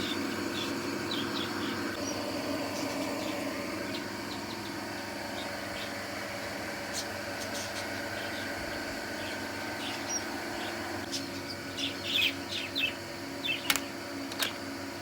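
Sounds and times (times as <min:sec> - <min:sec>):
small birds chirping: 0:00.0 - 0:14.6
steady background hum: 0:00.0 - 0:15.0
sharp clicks: 0:13.6 - 0:14.6.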